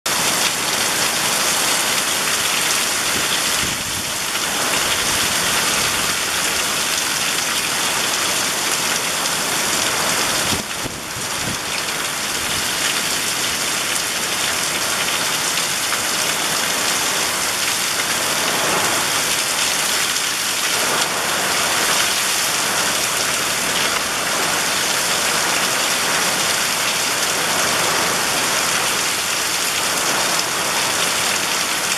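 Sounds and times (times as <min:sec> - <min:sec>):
heavy rain falling: 0:00.1 - 0:31.9.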